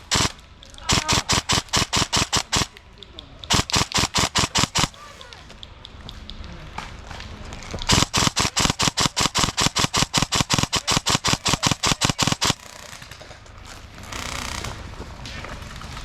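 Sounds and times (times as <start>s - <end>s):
airsoft gun rapid firing: 0.0s - 5.5s, 7.9s - 13.3s, 14.0s - 14.8s.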